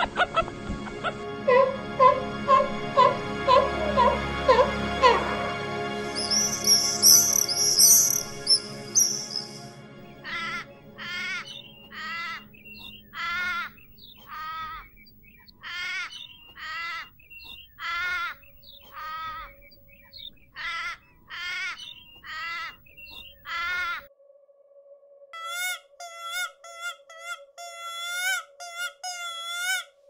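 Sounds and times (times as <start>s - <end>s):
bird making harsh calls: 6.2s - 9.6s, 10.2s - 24.0s, 25.4s - 29.9s.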